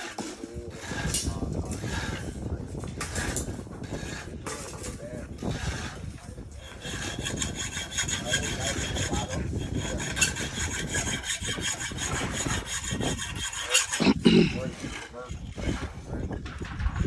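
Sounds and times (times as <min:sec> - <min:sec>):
rasping hand-tool strokes: 0:00.0 - 0:17.0.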